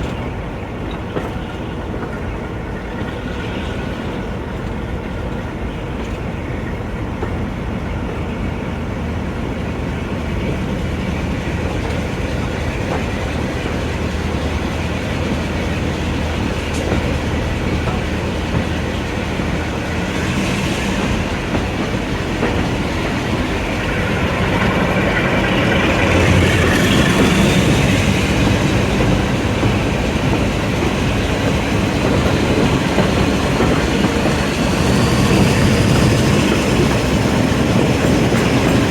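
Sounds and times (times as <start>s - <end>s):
train running: 0.0s - 38.9s
wheels clicking over rail joints: 10.0s - 20.2s, 21.4s - 38.9s.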